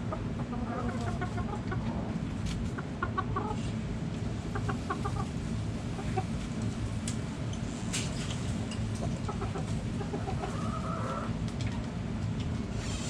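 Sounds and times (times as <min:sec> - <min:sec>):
hens clucking: 0:00.0 - 0:06.8, 0:09.0 - 0:11.5
steady low rumble: 0:00.0 - 0:12.7.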